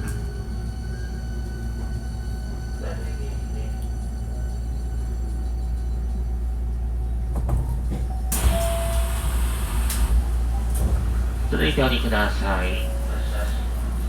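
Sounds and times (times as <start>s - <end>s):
train low rumble: 0.0s - 14.0s
brief tone: 8.3s - 9.3s.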